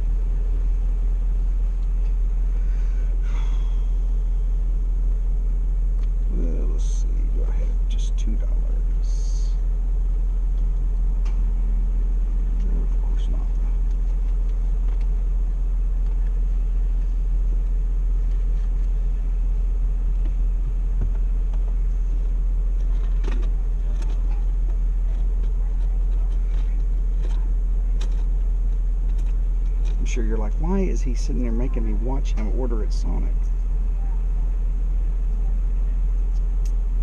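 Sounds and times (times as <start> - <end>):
car engine idling: 0.0 - 37.0
faint clicks and rustles: 12.4 - 30.1.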